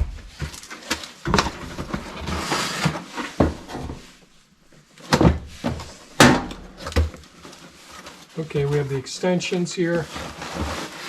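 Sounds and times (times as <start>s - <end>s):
cardboard knocks and thuds: 5.1s - 7.2s.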